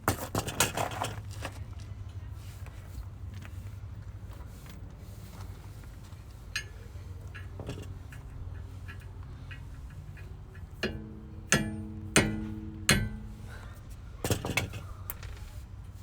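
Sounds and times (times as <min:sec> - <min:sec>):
low steady hum: 0:01.6 - 0:16.0
hammer striking ringing metal: 0:10.8 - 0:13.7.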